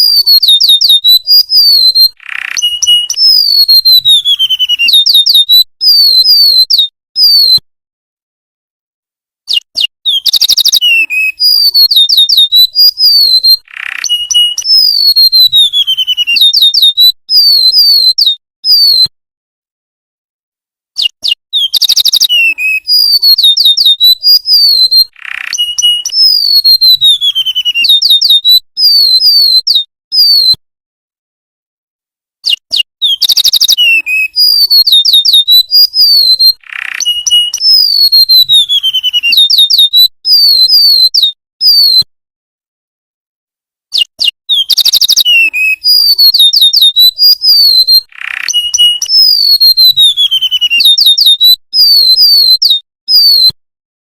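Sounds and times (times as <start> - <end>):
bird whistling song: 0.0 - 7.6, 9.5 - 19.1, 21.0 - 30.6, 32.4 - 42.1, 43.9 - 53.6.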